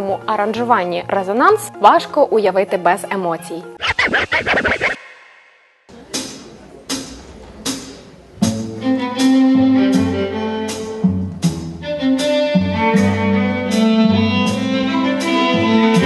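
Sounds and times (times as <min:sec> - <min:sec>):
percussive hits on a beat: 0:05.9 - 0:09.4
string ensemble playing: 0:08.5 - 0:16.0.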